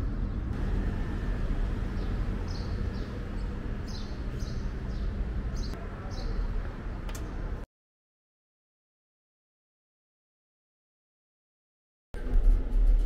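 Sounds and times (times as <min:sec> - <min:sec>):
steady low rumble: 0:00.0 - 0:05.8
small birds chirping: 0:01.7 - 0:06.7.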